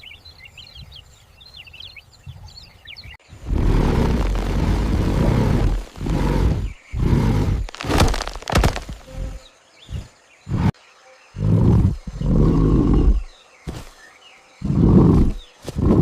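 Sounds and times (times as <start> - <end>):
animal roars: 3.4 - 9.4, 11.4 - 13.4, 14.6 - 16.0
sharp cracks: 3.5 - 9.2.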